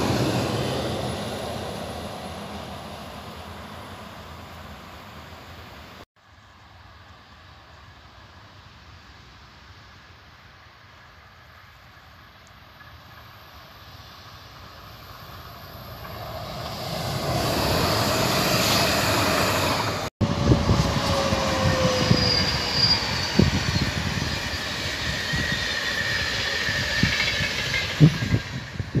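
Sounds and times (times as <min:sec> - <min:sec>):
electric train rolling: 0:00.0 - 0:06.0, 0:12.7 - 0:29.0
train wheels squealing: 0:15.6 - 0:29.0.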